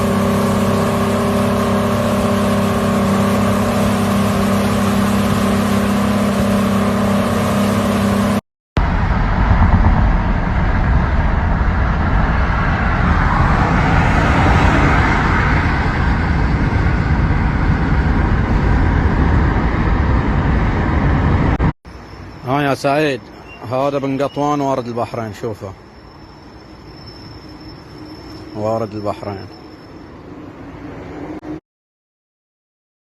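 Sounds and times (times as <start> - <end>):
boat engine running: 0.0 - 8.4.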